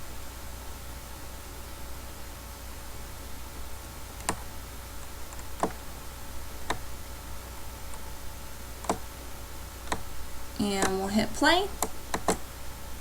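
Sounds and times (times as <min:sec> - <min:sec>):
steady low hum: 0:00.0 - 0:13.0
computer mouse clicks: 0:04.2 - 0:04.5, 0:05.3 - 0:05.8, 0:06.6 - 0:06.9, 0:08.8 - 0:09.1, 0:09.8 - 0:10.1, 0:11.8 - 0:12.4.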